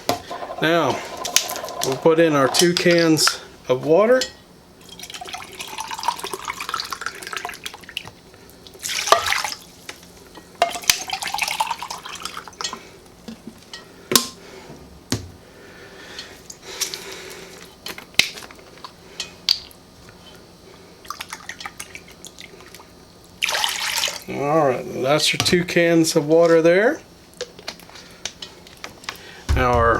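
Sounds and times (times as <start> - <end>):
water pouring into tin can: 0.4 - 2.8, 23.4 - 24.2.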